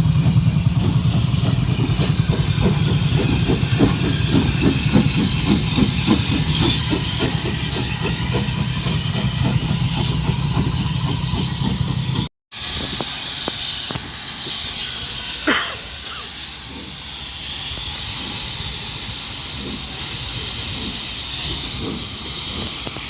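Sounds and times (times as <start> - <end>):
engine running steadily: 0.0 - 23.0
hiss: 12.6 - 23.0.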